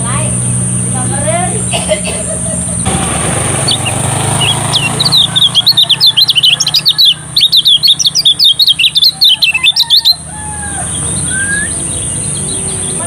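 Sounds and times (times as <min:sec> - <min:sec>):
bird singing high whistled notes: 0:03.6 - 0:13.0.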